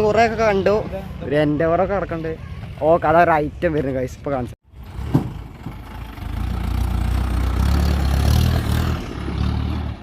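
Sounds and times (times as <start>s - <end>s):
off-road vehicle driving past: 4.7s - 10.0s.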